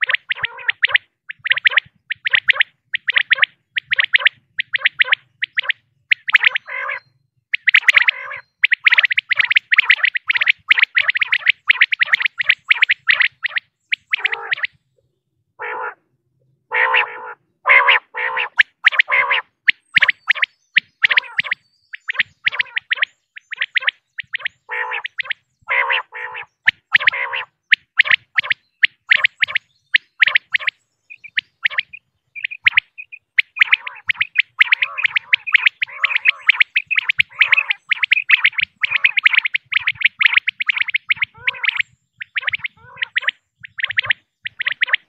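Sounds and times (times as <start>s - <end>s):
quail calling high notes: 0.0s - 14.8s, 16.7s - 45.0s
low rough quail notes: 30.3s - 45.0s.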